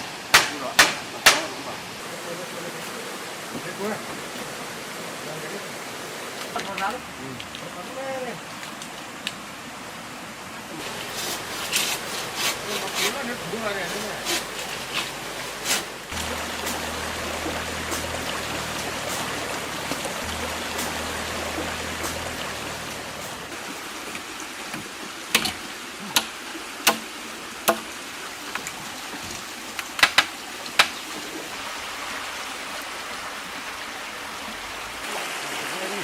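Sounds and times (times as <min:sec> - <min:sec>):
running water rushing: 0:00.0 - 0:36.0
sharp knocks: 0:00.3 - 0:01.6.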